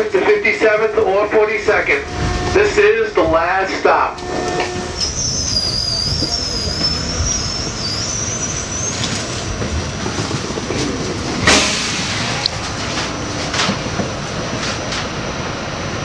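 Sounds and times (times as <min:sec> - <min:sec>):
subway train rumbling on rails: 0:00.0 - 0:16.0
high wavering wheel squeal: 0:04.1 - 0:09.4.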